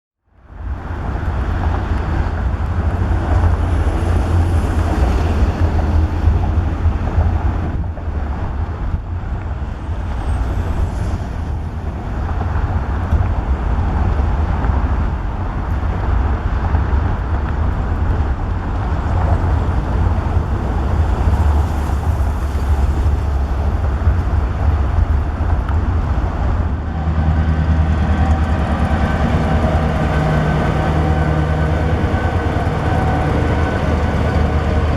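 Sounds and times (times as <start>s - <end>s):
diesel locomotive rumbling: 0.3s - 34.9s.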